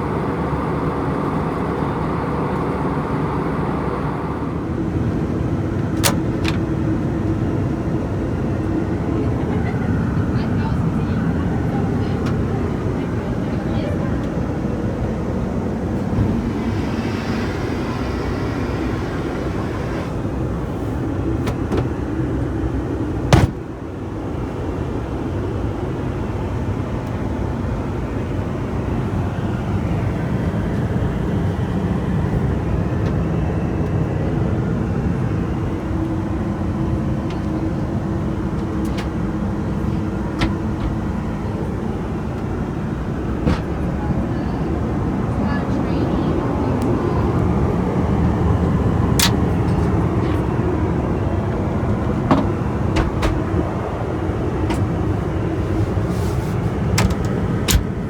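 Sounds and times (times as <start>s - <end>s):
aircraft cabin drone: 0.0s - 58.0s.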